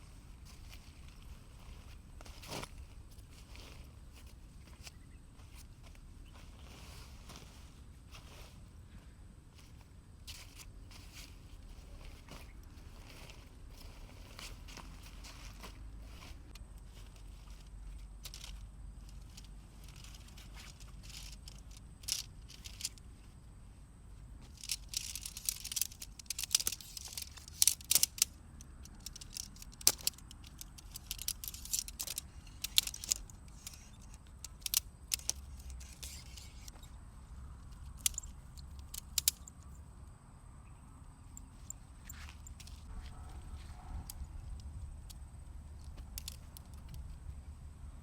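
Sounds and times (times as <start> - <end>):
camping gear clicking and clinking: 9.6 - 23.3, 24.3 - 39.8, 41.3 - 47.5.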